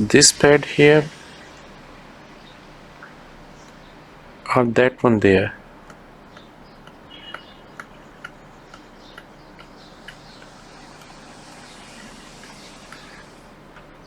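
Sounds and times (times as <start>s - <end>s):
low background hum: 0.0s - 14.0s
faint light clicks and ticks: 3.0s - 4.0s, 5.8s - 14.0s.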